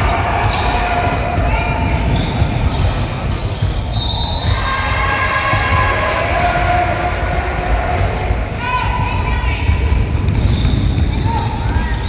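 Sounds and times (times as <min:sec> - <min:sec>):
gym noise: 0:00.0 - 0:12.0
shoe squeaks: 0:00.4 - 0:06.7.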